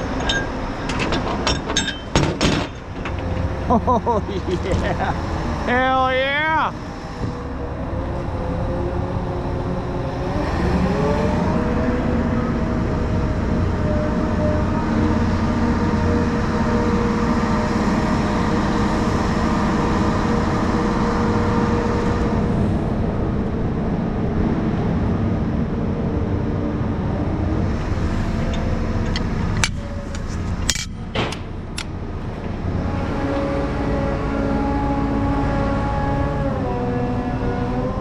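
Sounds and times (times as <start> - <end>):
diesel engine droning: 0.0 - 38.0
sharp clicks or knocks: 28.5 - 31.9.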